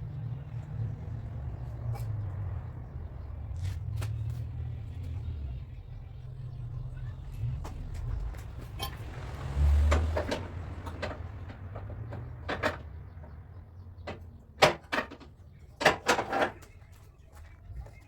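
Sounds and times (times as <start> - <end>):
tools clattering on car panels: 8.5 - 16.8.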